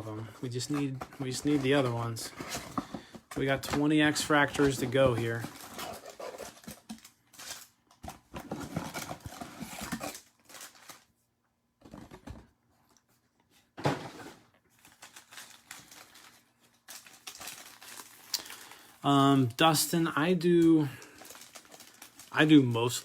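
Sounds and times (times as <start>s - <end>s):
foil wrappers crinkling: 0.4s - 11.1s, 14.6s - 23.0s.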